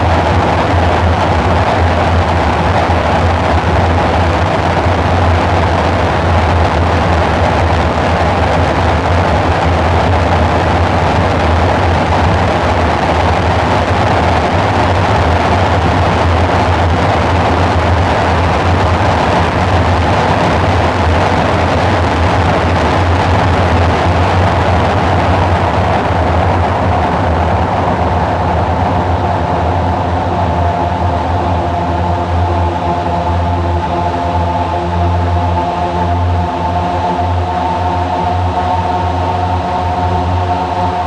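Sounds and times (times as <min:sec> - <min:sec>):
low synthesizer drone: 0:00.0 - 0:41.0
rushing noise layer: 0:00.0 - 0:41.0.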